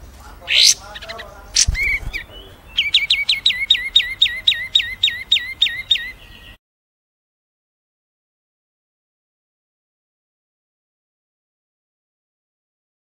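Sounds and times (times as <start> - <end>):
small songbird chirping: 0.0 - 6.6.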